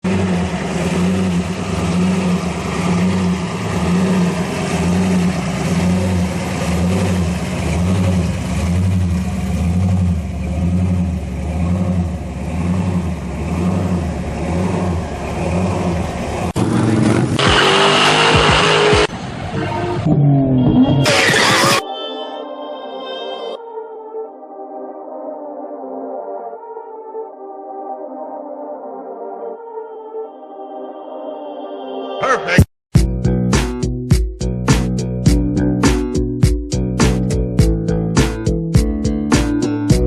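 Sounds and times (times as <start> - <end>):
car engine pulsing: 0.0 - 21.8.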